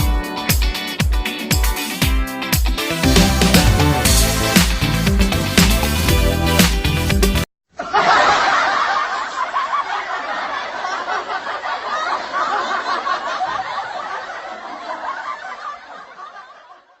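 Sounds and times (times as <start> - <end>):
crowd laughing: 7.7 - 17.0.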